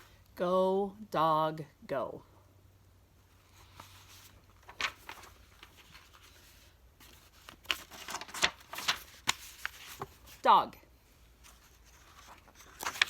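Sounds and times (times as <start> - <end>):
book pages turning: 3.4 - 10.4, 11.4 - 13.0.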